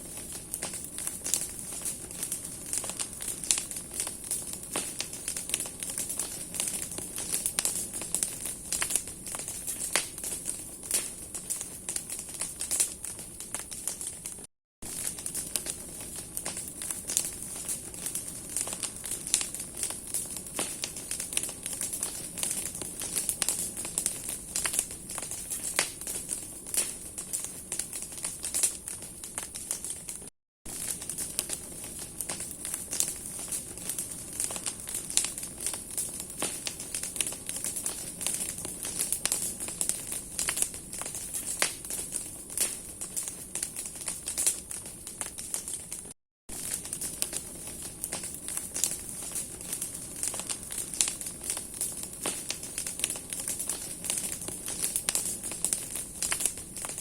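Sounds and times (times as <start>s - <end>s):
fire hiss: 0.0s - 30.0s, 30.7s - 57.0s
bonfire crackling and popping: 0.0s - 57.0s.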